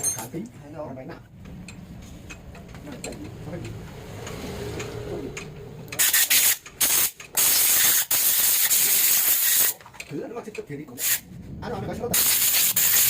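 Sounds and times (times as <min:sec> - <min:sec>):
quiet rumble: 0:00.1 - 0:06.0, 0:10.0 - 0:12.2
high-pitched hissing bursts: 0:06.0 - 0:09.8, 0:11.0 - 0:11.2, 0:12.2 - 0:13.0.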